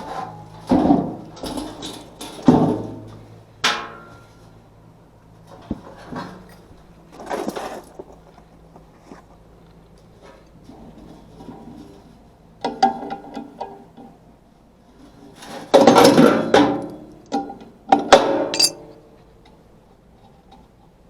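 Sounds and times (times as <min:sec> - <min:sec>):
knocks and clanks of handling: 0:18.5 - 0:18.8
sharp metallic clank: 0:18.5 - 0:18.8.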